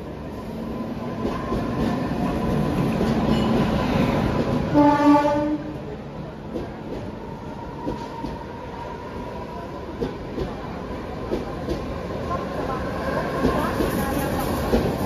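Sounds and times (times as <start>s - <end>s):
train wheels rumbling on rails: 0.0s - 15.0s
train horn blast: 4.7s - 5.7s.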